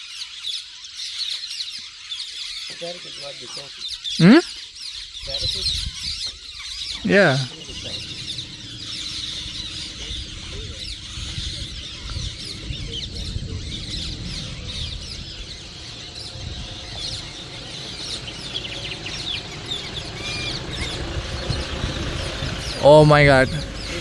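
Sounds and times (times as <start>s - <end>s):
birds chirping and whistling: 5.3s - 24.0s
steady low rumble: 7.5s - 24.0s.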